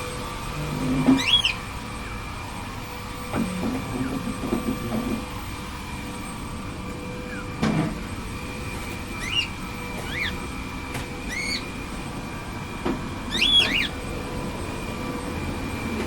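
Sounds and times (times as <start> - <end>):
cockatiel chirps: 1.1 - 1.6, 9.2 - 10.4, 11.3 - 11.7, 13.3 - 14.0.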